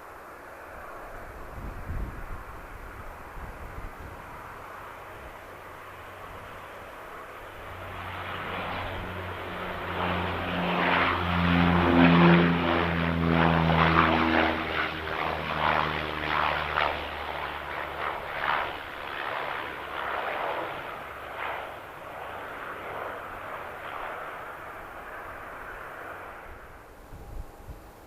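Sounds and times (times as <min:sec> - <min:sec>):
propeller airliner passing: 0:00.0 - 0:28.0.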